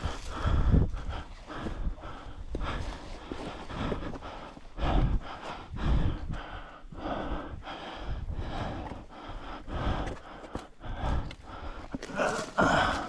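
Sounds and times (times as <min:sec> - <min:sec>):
person breathing hard: 0:00.0 - 0:13.0
footsteps on rocky ground: 0:01.5 - 0:05.7.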